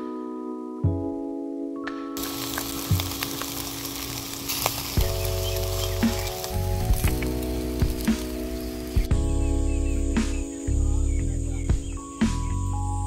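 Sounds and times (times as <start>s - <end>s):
background music: 0.0s - 13.0s
food frying in hot fat: 2.2s - 9.1s.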